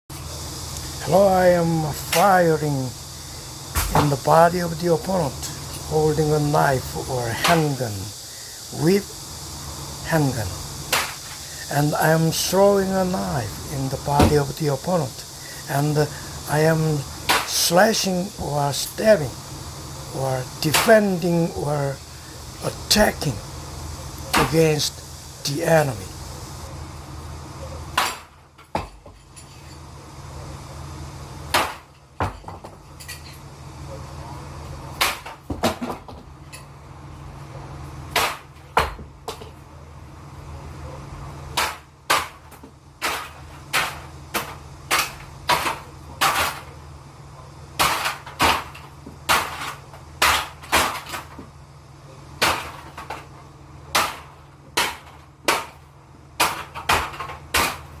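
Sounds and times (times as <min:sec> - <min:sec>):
steady low hum: 0:00.1 - 0:58.0.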